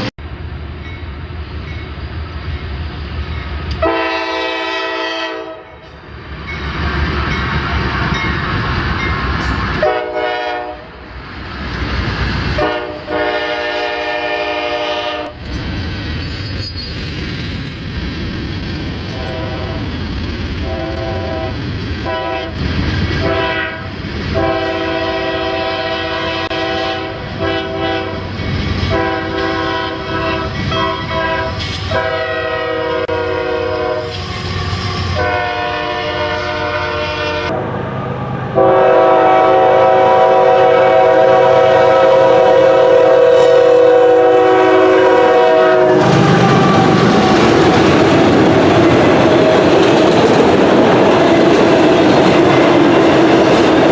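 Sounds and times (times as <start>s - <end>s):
locomotive air horn blasts: 3.8s - 5.8s, 9.8s - 10.9s, 12.6s - 15.4s, 19.1s - 19.8s, 20.6s - 22.6s, 23.2s - 28.3s, 28.9s - 34.2s, 34.8s - 37.7s, 38.6s - 47.5s
train wheels clattering on rails: 46.0s - 53.9s.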